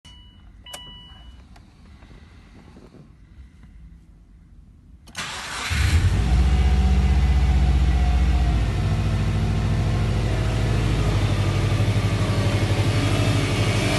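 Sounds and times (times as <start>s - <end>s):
car engine starting and idling: 5.0s - 13.9s.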